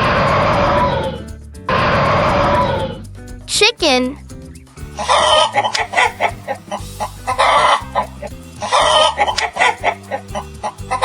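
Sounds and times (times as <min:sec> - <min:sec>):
hen clucking: 0:05.0 - 0:10.4.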